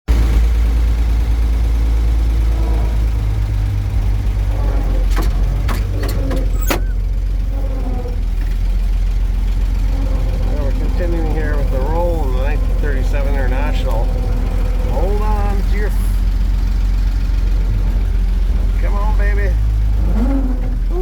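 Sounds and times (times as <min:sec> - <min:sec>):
truck engine rumbling: 0:00.0 - 0:21.0
sharp clunks: 0:04.1 - 0:07.1.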